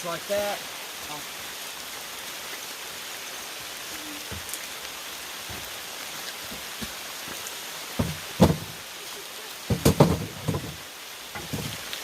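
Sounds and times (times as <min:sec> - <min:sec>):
steady pouring rain: 0:00.0 - 0:12.0.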